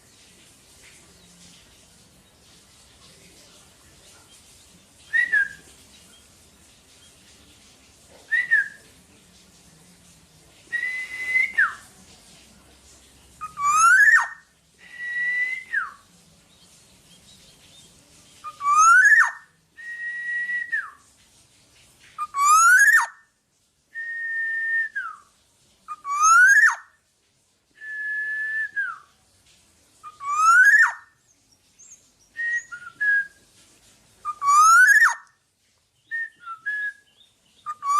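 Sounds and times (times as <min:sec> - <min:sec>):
bird singing fluty whistles: 0:05.0 - 0:05.7, 0:08.3 - 0:08.8, 0:10.7 - 0:11.8, 0:13.4 - 0:16.0, 0:18.4 - 0:21.0, 0:22.2 - 0:23.2, 0:24.0 - 0:25.3, 0:25.9 - 0:26.9, 0:27.8 - 0:29.1, 0:30.0 - 0:31.1, 0:31.8 - 0:33.4, 0:34.2 - 0:35.2, 0:36.0 - 0:37.9.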